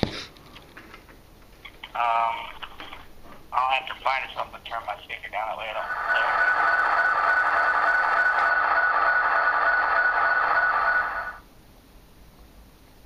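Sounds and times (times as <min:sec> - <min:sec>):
steady high tone: 0:05.4 - 0:11.4.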